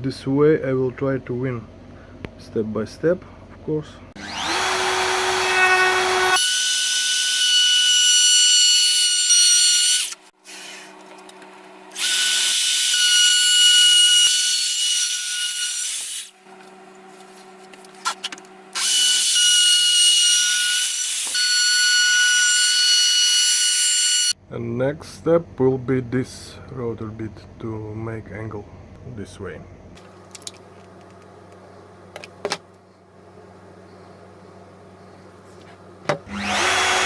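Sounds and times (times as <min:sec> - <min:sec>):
router humming: 0:04.2 - 0:08.4, 0:36.1 - 0:37.0
router cutting wood: 0:04.2 - 0:10.9, 0:11.9 - 0:16.3, 0:18.8 - 0:24.4, 0:36.1 - 0:37.0.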